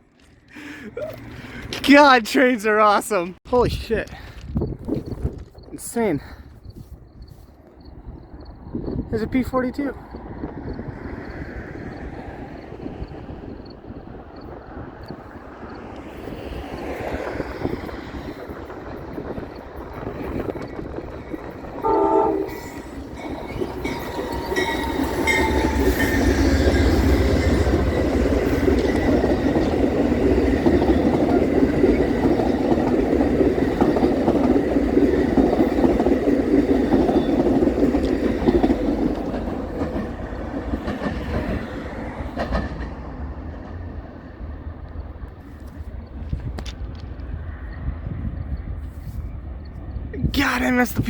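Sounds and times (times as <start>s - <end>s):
passenger train passing: 0.0s - 51.0s
train horn blast: 21.8s - 23.0s, 24.3s - 27.8s.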